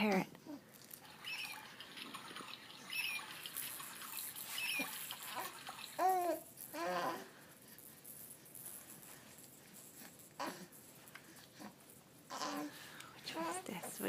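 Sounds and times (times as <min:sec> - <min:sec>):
baby cooing and babbling: 0:04.6 - 0:07.3, 0:10.4 - 0:10.8, 0:12.3 - 0:12.8.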